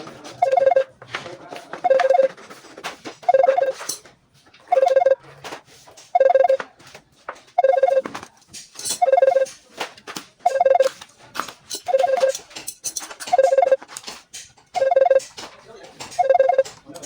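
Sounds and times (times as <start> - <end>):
electronic two-tone ringing trill: 0.4 - 0.9, 1.8 - 2.3, 3.3 - 3.8, 4.7 - 5.2, 6.2 - 6.6, 7.6 - 8.1, 9.0 - 9.5, 10.5 - 10.9, 11.9 - 12.4, 13.3 - 13.8, 14.8 - 15.2, 16.2 - 16.8
clicks and knocks: 7.4 - 17.0.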